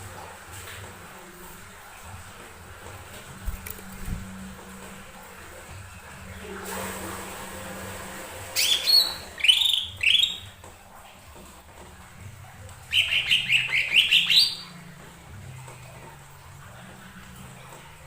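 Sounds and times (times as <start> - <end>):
bird chirping: 8.6 - 10.5, 12.9 - 14.8.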